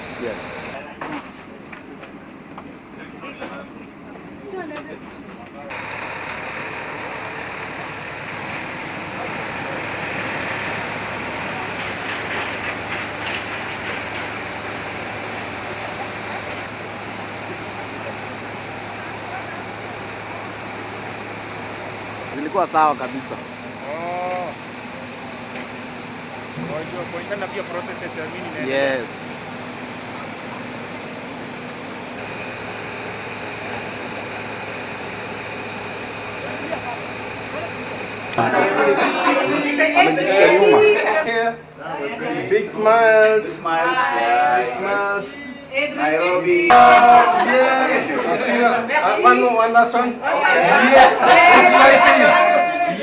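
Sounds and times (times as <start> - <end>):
mechanical hum and hiss: 0.0 - 53.0
jet aircraft drone with whine: 5.7 - 38.5.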